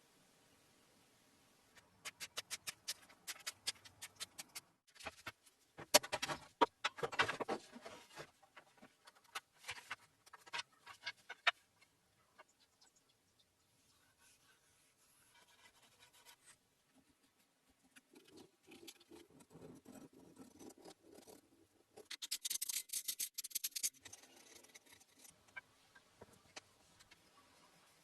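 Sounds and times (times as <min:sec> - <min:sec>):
faint scratching and rubbing: 0:13.8 - 0:21.6.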